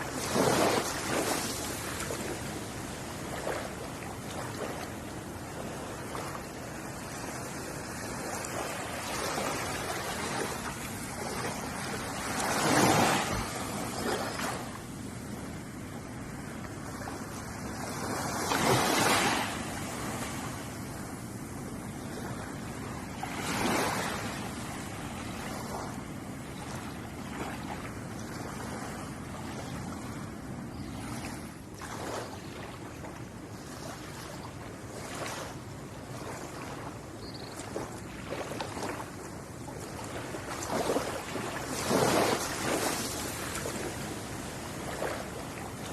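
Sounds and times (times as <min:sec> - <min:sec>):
ocean waves breaking on shore: 0:00.0 - 0:45.9.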